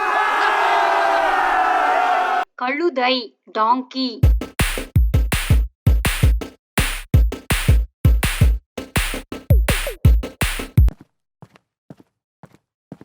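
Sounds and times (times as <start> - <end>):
drum machine beat: 4.2 - 10.9.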